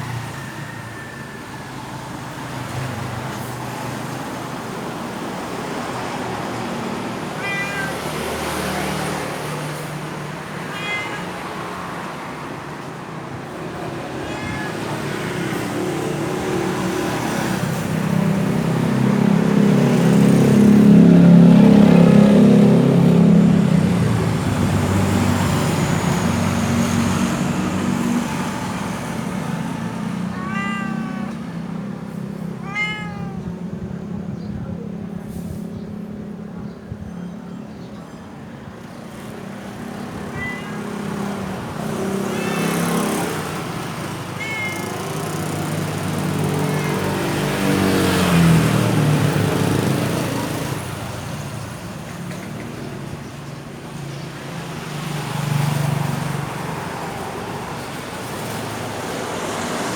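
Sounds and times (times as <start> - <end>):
cat meowing: 7.1 - 12.1, 13.5 - 17.3, 29.0 - 34.3, 39.9 - 49.1.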